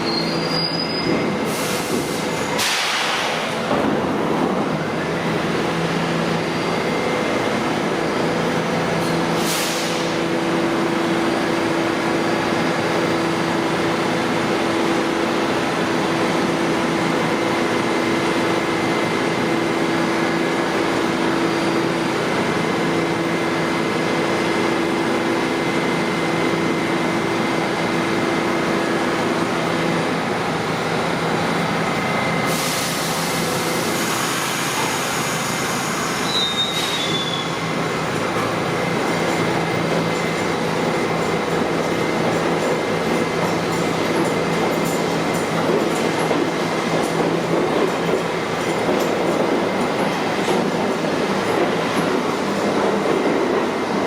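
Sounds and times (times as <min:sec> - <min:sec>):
train electrical hum: 0:00.0 - 0:54.0
air hissing: 0:09.3 - 0:10.2.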